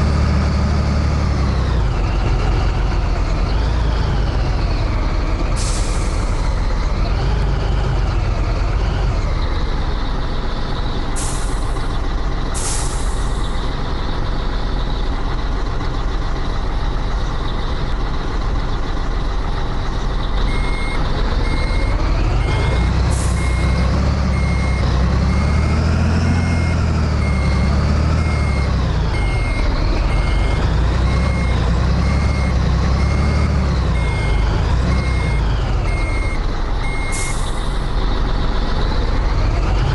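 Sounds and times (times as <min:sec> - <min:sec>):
diesel truck engine revving: 0:00.0 - 0:39.9
short air hisses: 0:12.6 - 0:13.4
electronic beeping: 0:20.5 - 0:37.3.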